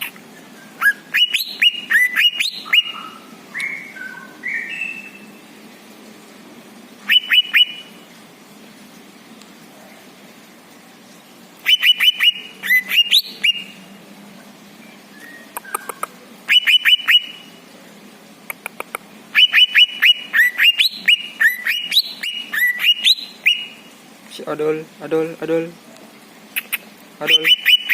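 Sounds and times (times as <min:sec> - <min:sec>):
songbird singing: 0:00.0 - 0:06.1, 0:06.7 - 0:08.4, 0:11.0 - 0:27.9.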